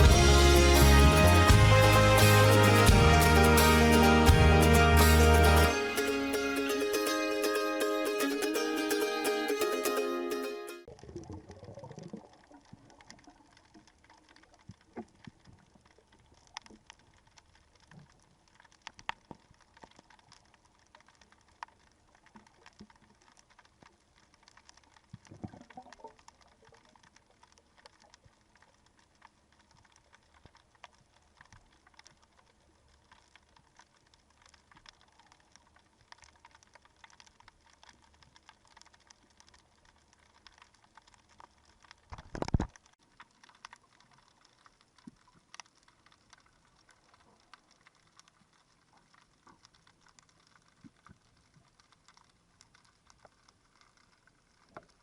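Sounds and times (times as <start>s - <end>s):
underwater crackling clicks: 11.8s - 55.0s.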